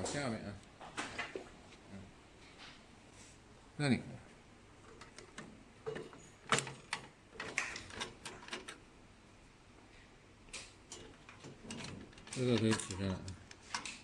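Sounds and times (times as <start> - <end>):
clicks and knocks on printer parts: 4.9 - 8.8, 10.5 - 14.0.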